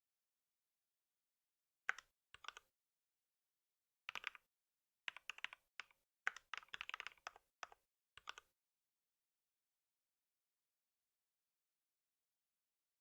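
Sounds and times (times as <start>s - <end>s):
computer keyboard typing: 1.9s - 2.6s, 4.1s - 4.4s, 5.1s - 8.5s.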